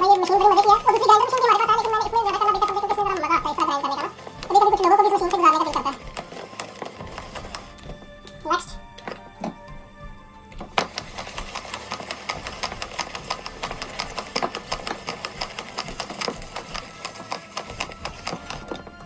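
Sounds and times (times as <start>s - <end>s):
food chopper clattering: 0.0s - 8.4s, 10.5s - 18.9s.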